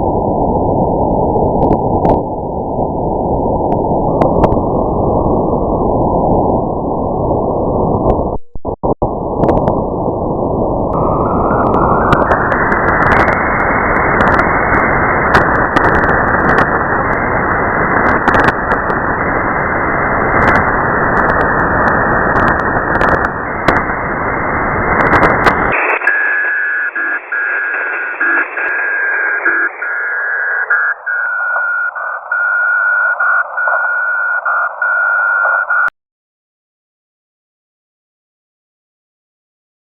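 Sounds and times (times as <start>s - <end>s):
radio static hiss with crackles: 10.9s - 35.9s
steady whistling tone: 25.7s - 35.9s.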